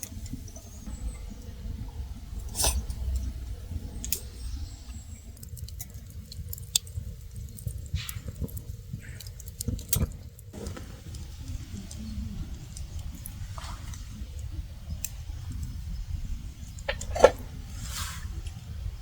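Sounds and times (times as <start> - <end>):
steady low rumble: 0.0 - 6.5, 10.6 - 19.0.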